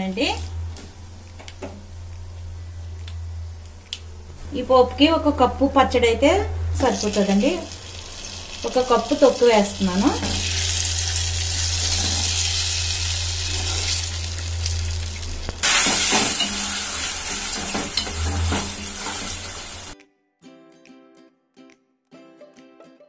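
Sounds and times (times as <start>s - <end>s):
hot oil sizzling and spitting: 6.8s - 20.0s
plucked-string background music: 18.3s - 23.0s.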